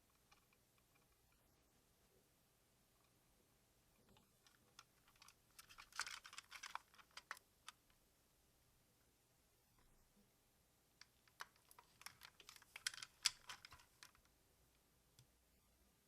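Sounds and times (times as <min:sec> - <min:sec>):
plastic toy parts clicking: 0:04.4 - 0:07.8, 0:11.0 - 0:14.3.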